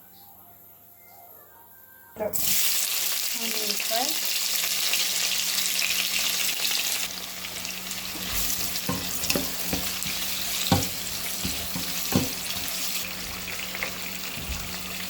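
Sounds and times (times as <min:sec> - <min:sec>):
onions sizzling in oil: 0:02.3 - 0:15.0
spatula knocking against pan: 0:08.1 - 0:12.8.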